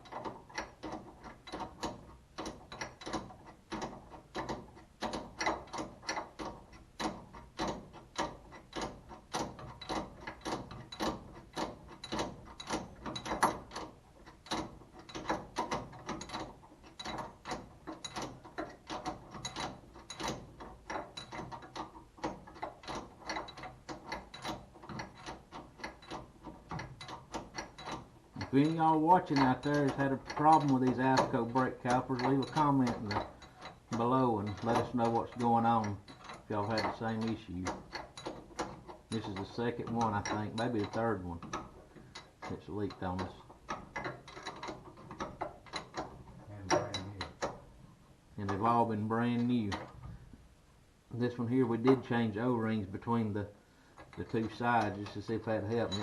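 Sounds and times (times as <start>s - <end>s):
socket ratchet clicking: 43.2s - 47.7s.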